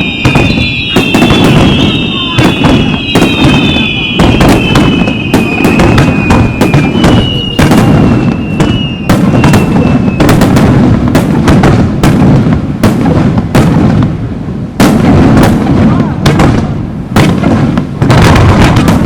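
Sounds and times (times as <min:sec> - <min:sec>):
high firework whistle: 0:00.0 - 0:10.8
fireworks booms and cracks: 0:00.0 - 0:19.0.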